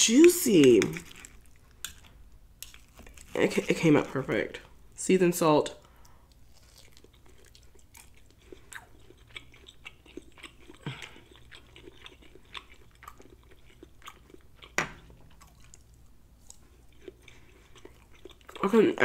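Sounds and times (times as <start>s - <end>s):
person chewing meat: 6.0s - 18.6s.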